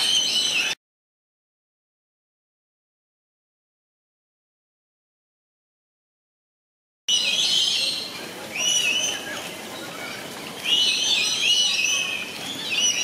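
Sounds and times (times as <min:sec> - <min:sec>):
birds chirping: 0:00.0 - 0:00.8, 0:07.1 - 0:13.0.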